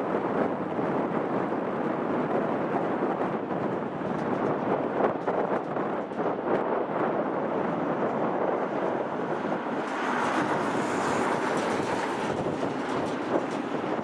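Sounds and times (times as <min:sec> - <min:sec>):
jet engines rushing: 0:07.3 - 0:14.0.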